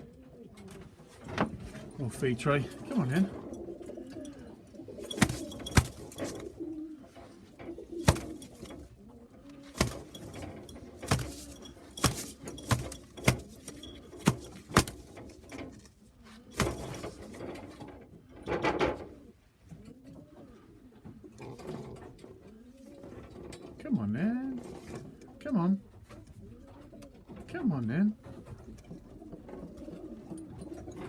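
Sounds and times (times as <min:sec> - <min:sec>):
pigeons cooing: 0:00.0 - 0:23.5, 0:24.6 - 0:27.4, 0:28.9 - 0:31.0
rustling: 0:04.9 - 0:17.8
sharp knocks: 0:08.0 - 0:08.6, 0:14.2 - 0:15.1.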